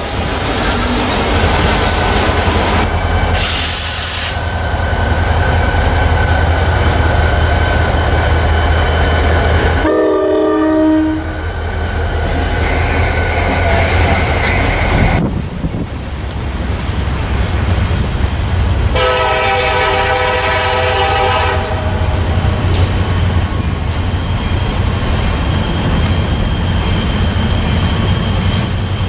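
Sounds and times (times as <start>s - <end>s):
diesel locomotive engine rumble: 0.0s - 29.0s
train horn blast: 9.8s - 11.4s, 18.9s - 22.2s.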